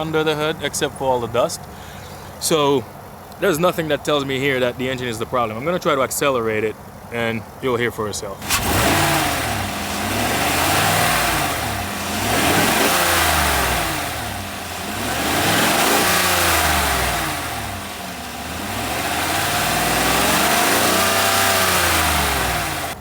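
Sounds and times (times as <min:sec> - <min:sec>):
engine revving: 0:08.4 - 0:23.0.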